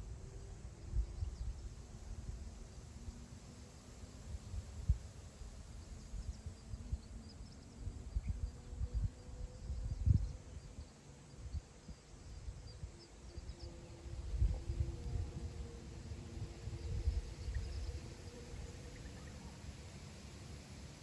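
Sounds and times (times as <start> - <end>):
wind on microphone: 0.0 - 3.3, 4.2 - 10.8, 11.4 - 19.6.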